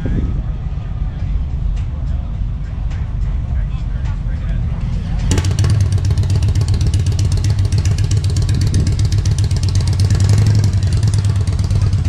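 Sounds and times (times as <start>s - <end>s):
car engine running loudly: 4.6s - 12.0s.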